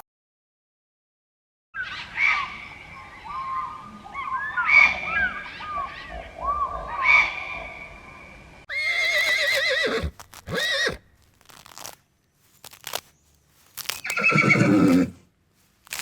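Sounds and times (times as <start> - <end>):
animal calls gliding up and down: 1.8 - 8.1, 13.8 - 15.2
horse whinnying: 8.7 - 11.1, 14.0 - 15.2.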